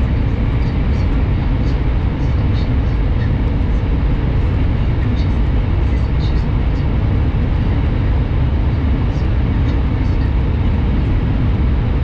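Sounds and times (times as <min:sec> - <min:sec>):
train running noise at speed: 0:00.0 - 0:12.0.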